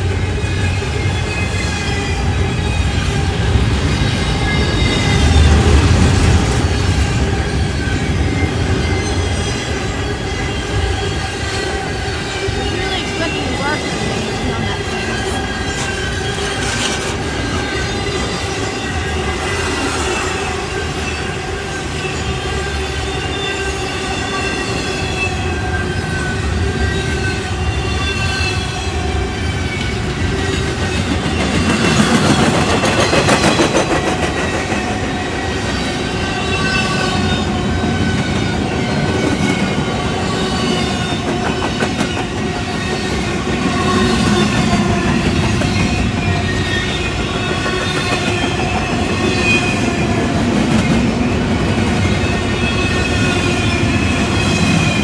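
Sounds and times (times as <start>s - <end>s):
train wheels clacking on rails: 0.0s - 55.0s
high-pitched wheel squeal: 6.6s - 34.0s.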